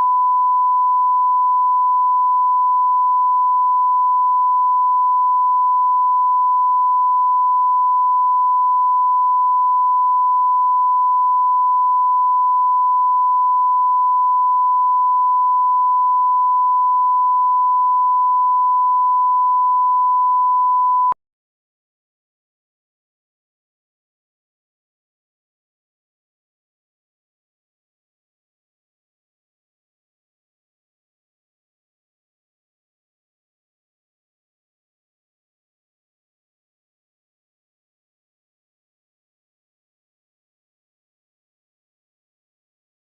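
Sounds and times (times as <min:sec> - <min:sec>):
pure test tone: 0:00.0 - 0:21.2.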